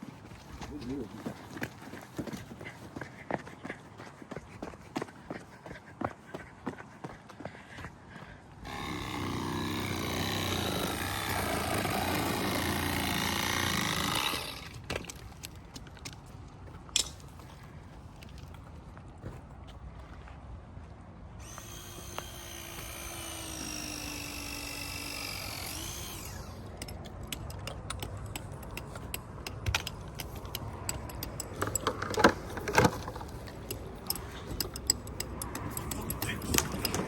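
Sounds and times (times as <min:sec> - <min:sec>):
metallic clicks and rattles of tools: 0:16.9 - 0:17.3, 0:21.4 - 0:37.0.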